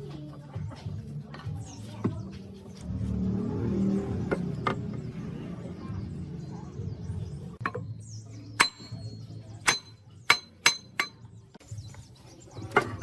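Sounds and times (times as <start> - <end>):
hammer striking metal: 8.6 - 11.3.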